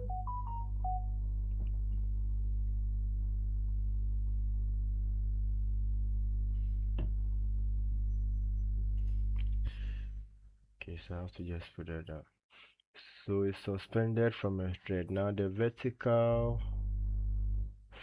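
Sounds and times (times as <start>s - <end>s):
low electrical hum: 0.0s - 11.1s, 16.1s - 17.8s.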